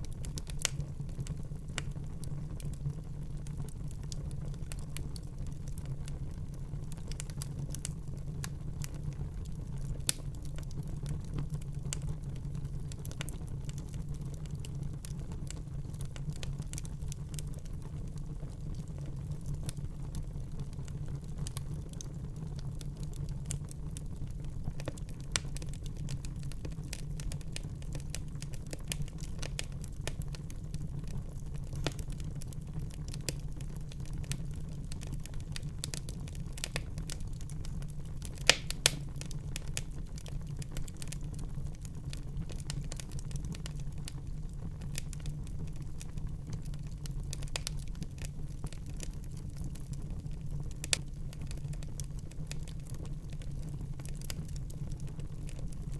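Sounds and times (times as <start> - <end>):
wood fire crackling: 0.0 - 55.9
sharp pops of fire: 31.7 - 32.2, 38.2 - 39.4.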